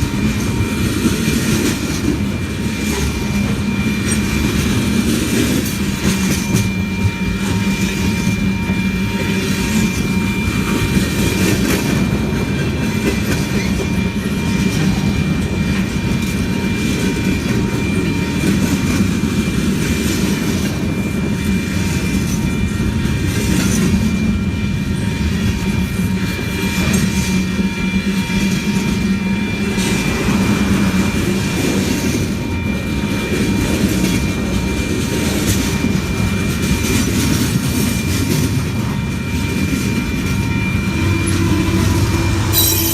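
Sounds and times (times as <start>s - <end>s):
train rolling past: 0.0s - 42.9s.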